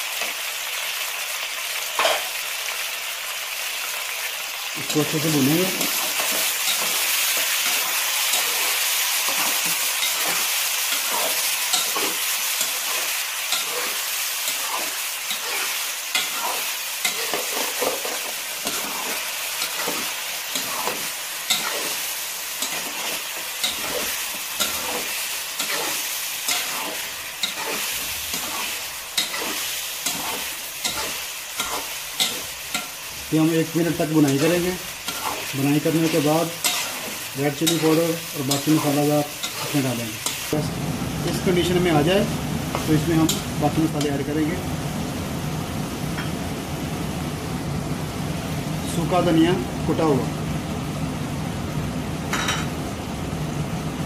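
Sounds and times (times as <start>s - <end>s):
food sizzling in hot oil: 0.0s - 54.0s
metal spatula scraping a pot: 20.6s - 22.0s, 22.6s - 32.9s, 34.3s - 37.9s.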